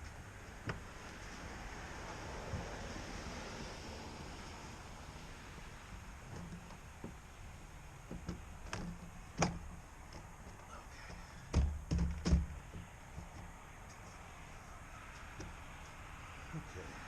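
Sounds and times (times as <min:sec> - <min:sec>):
parts knocking and clicking: 0:08.0 - 0:14.2
loud thumps: 0:11.5 - 0:12.9.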